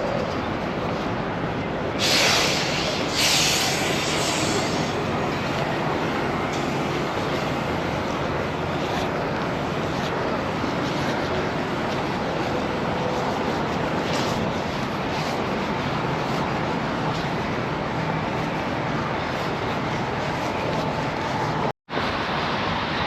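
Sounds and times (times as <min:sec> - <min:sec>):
truck engine rumble: 0:00.0 - 0:23.0
air hissing bursts: 0:02.0 - 0:05.1.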